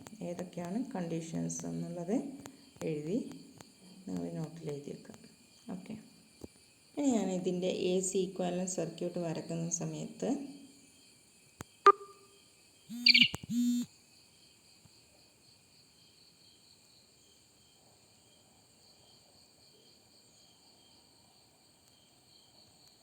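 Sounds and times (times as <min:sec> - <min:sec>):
insects chirping: 0:00.0 - 0:23.0
sharp clicks: 0:12.9 - 0:13.8.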